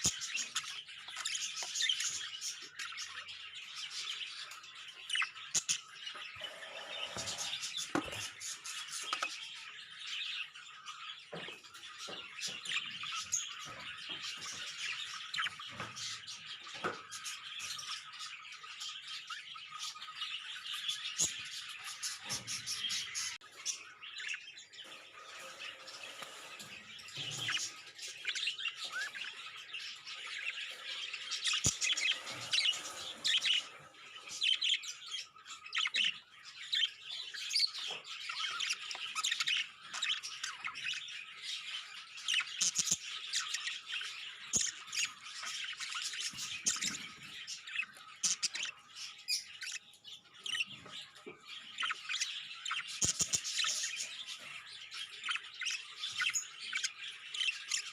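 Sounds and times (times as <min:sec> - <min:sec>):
budgerigars chattering: 0:18.9 - 0:57.9.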